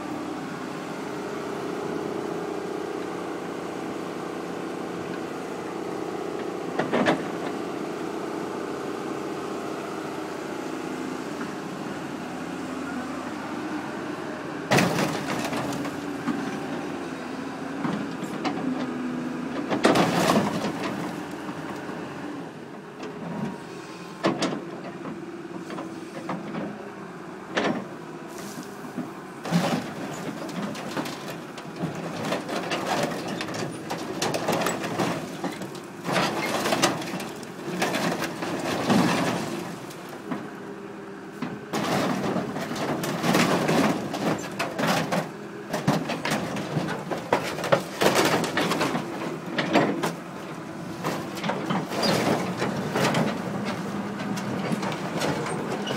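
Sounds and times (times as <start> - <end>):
heavy machine engine running: 0.0 - 55.9
metal crunching and banging: 14.7 - 16.6, 19.6 - 21.6, 29.4 - 40.6, 41.3 - 55.9.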